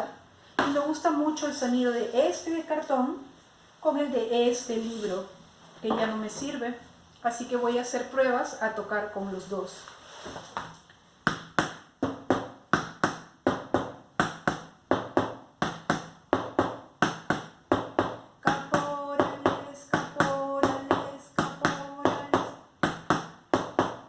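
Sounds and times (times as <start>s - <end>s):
cardboard box struck like drum: 11.3s - 24.0s.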